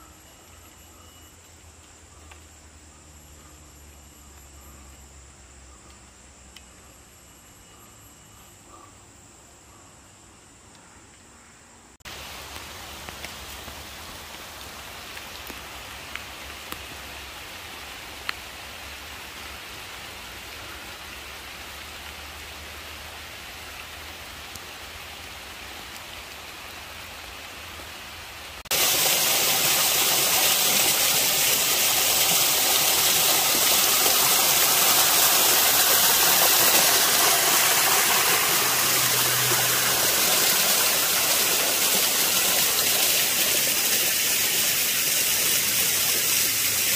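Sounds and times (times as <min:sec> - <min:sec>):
rain hiss: 0:00.0 - 0:06.6, 0:12.0 - 0:46.9
rain drop ticks: 0:01.4 - 0:02.5, 0:12.5 - 0:17.0, 0:18.2 - 0:18.5
rush of falling water: 0:12.1 - 0:46.9.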